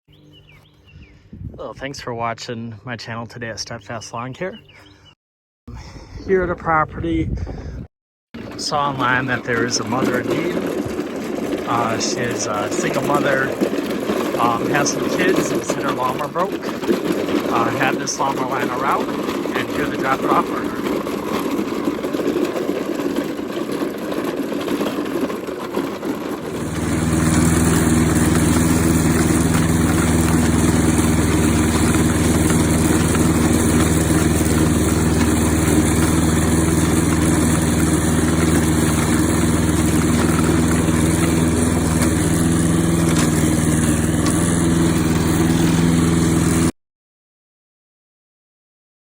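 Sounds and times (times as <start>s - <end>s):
lawn mower engine running: 8.4s - 46.7s.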